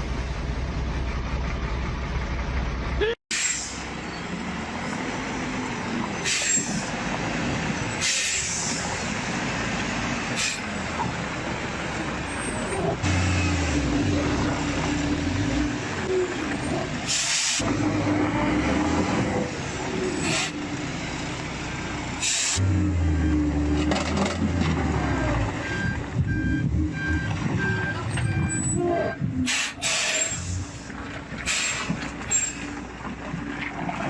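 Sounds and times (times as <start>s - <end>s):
truck engine under load: 0.0s - 34.0s
air-brake hisses: 17.1s - 17.6s, 22.2s - 22.6s, 29.5s - 30.8s, 31.5s - 32.6s.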